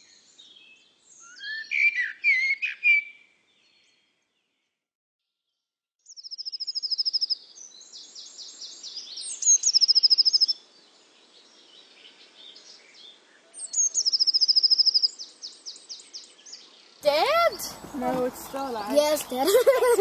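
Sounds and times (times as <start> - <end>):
songbird trilling: 1.2 - 3.2, 6.1 - 10.6, 13.6 - 16.6
faint outdoor background noise: 6.0 - 20.0.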